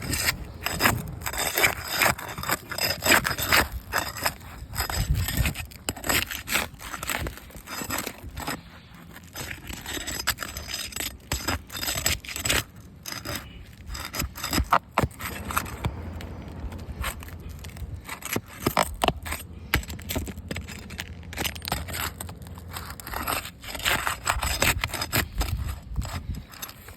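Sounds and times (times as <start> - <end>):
objects scraping and rubbing: 0.0 - 26.9.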